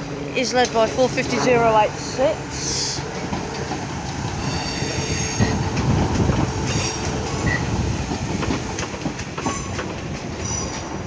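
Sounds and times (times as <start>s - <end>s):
train wheels rumbling on rail: 0.0s - 11.0s
wheels clicking over rail joints: 3.1s - 11.0s
high wheel squeal: 4.4s - 5.6s.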